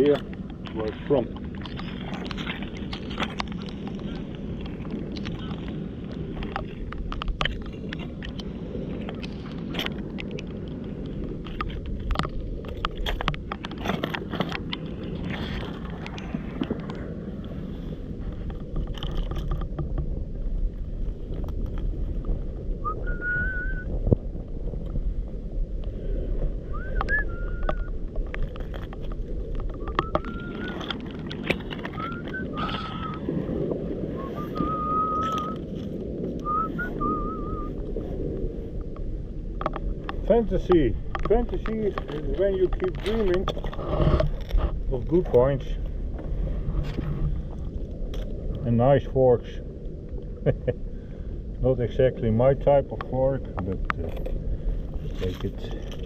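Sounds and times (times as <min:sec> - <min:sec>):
low rumble of wind and water: 0:00.0 - 0:56.0
short whistled chirps: 0:22.8 - 0:23.9, 0:26.7 - 0:27.9, 0:29.8 - 0:30.8, 0:34.2 - 0:35.6, 0:36.4 - 0:37.8.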